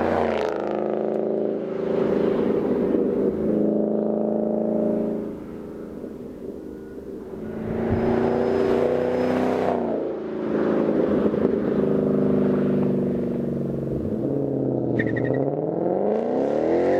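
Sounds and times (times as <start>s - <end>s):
car engine revving: 7.2s - 16.9s.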